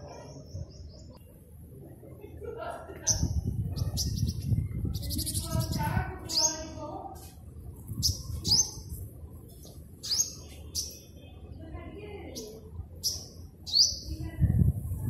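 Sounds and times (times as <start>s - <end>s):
small bird chirping: 3.0s - 6.8s, 7.9s - 9.0s, 9.6s - 11.2s, 12.3s - 14.3s.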